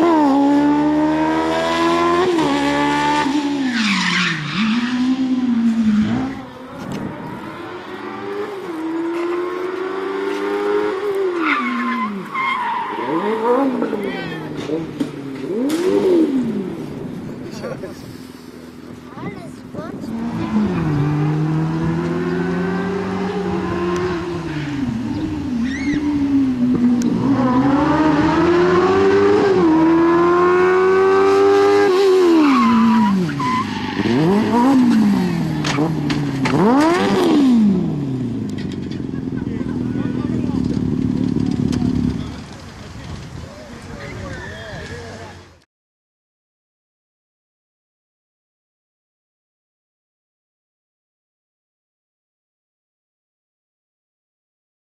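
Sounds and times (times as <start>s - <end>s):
motorcycle engine revving hard: 0.0s - 3.7s, 13.0s - 16.8s, 20.0s - 42.4s
tyre squeals: 11.2s - 14.5s, 25.6s - 26.2s, 32.3s - 34.8s, 44.0s - 45.2s.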